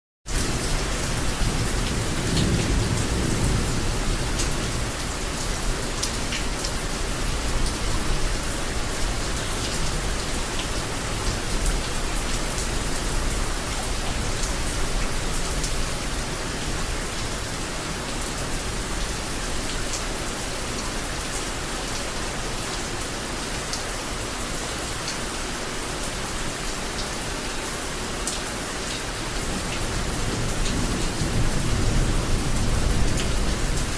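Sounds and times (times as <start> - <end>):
heavy rain falling: 0.3 - 33.9
low rumble of thunder: 0.4 - 5.8, 29.3 - 33.9.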